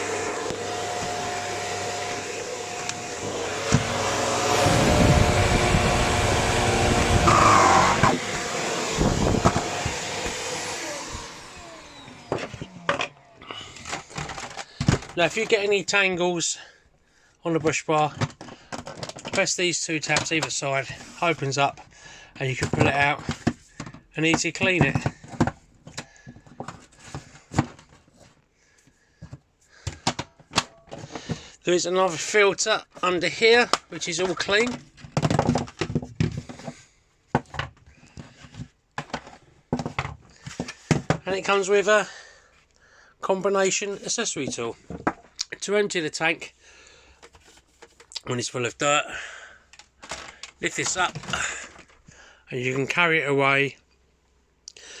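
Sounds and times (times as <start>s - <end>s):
vacuum cleaner motor winding down: 0.0s - 14.4s.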